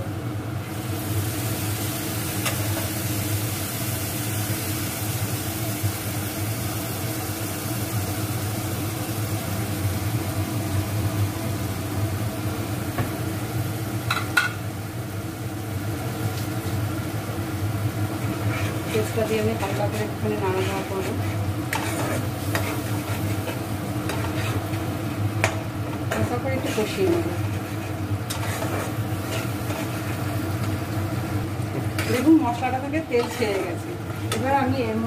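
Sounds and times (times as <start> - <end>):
paste sizzling in hot oil: 0.7 - 11.0, 18.0 - 30.8.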